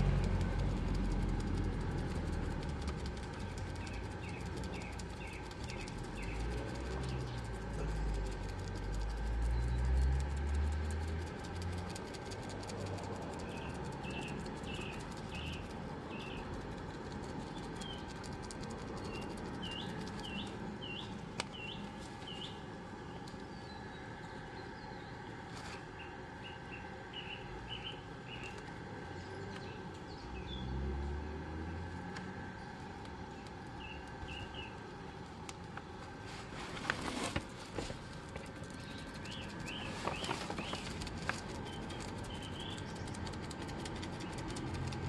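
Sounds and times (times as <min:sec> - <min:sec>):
low rumble: 0:00.0 - 0:04.6
small bird chirping: 0:00.0 - 0:25.3, 0:25.9 - 0:30.8, 0:33.3 - 0:35.0, 0:38.3 - 0:45.0
outdoor background hiss: 0:00.0 - 0:45.0.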